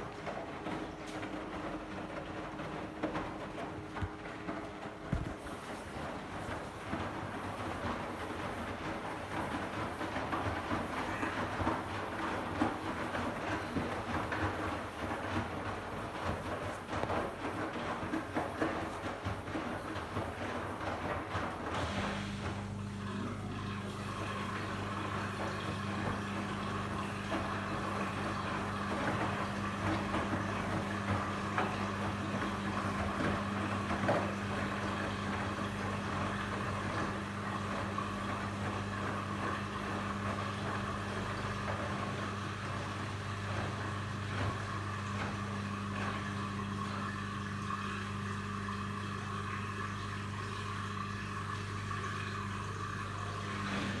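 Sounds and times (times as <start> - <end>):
washing machine humming and whirring: 0.0 - 54.0.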